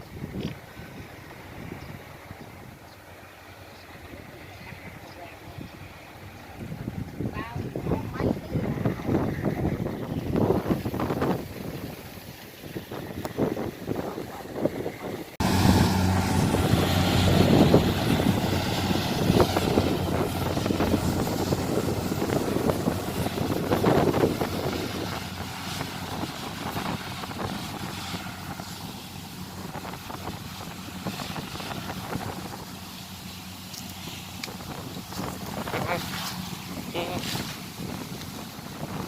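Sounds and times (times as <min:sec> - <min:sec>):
wind noise on microphone: 0:00.0 - 0:02.9, 0:05.6 - 0:39.0
engine running steadily: 0:00.1 - 0:39.0.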